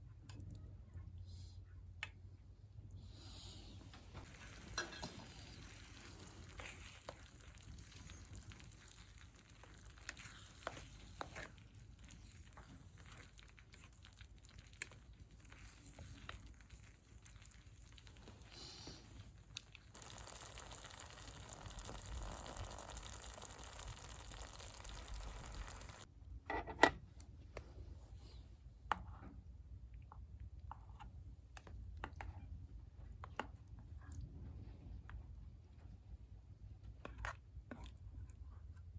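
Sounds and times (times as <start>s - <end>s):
faint sizzling in a pan: 3.2s - 26.1s.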